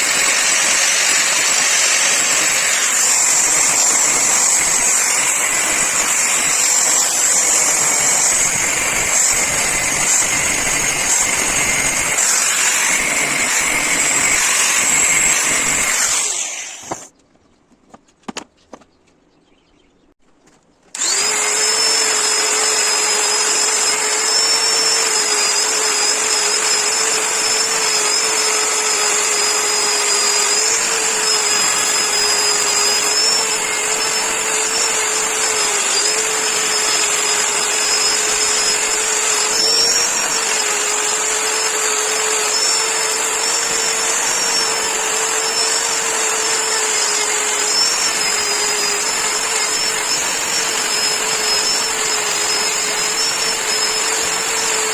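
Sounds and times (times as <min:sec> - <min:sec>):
power tool motor whining: 0:00.0 - 0:17.1, 0:21.0 - 0:54.9.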